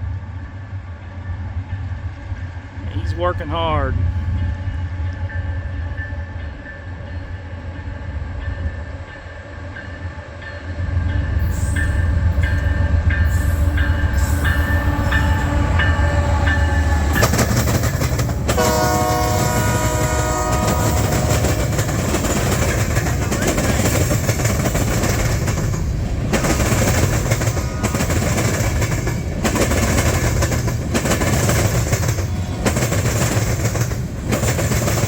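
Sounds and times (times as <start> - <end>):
locomotive bell dinging: 8.5 - 35.0
diesel locomotive rumble: 10.9 - 35.0
multi-chime locomotive horn: 11.3 - 24.2, 26.4 - 30.5.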